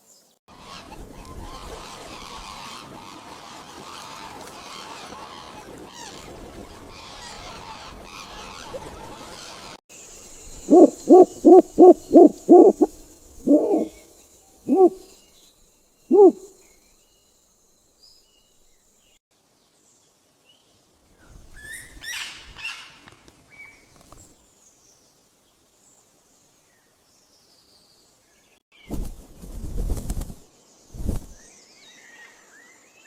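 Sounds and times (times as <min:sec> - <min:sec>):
bird hooting: 0:10.6 - 0:14.0, 0:14.7 - 0:15.0, 0:16.1 - 0:16.5
higher rough bird call: 0:10.7 - 0:14.0, 0:14.7 - 0:15.0, 0:16.1 - 0:16.5.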